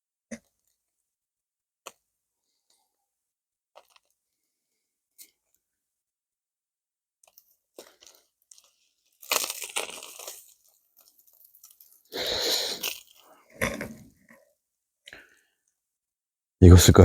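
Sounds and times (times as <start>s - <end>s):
crunching rustling noise: 7.3s - 14.1s.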